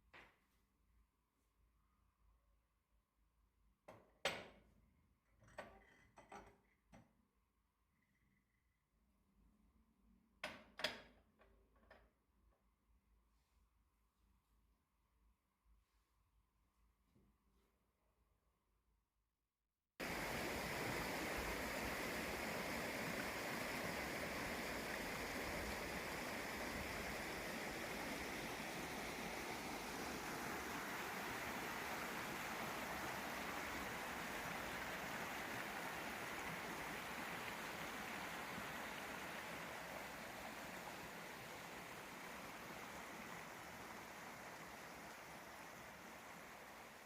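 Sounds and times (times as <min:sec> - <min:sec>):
water running: 0:20.0 - 0:47.0.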